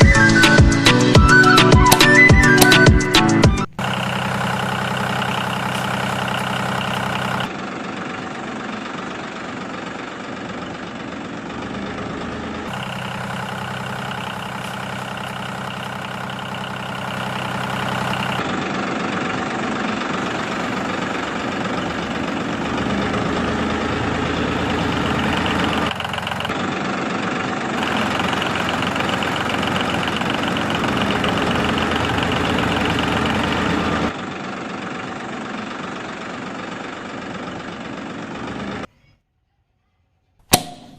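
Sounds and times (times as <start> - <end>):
motor humming: 20.1 - 26.6, 27.8 - 34.1.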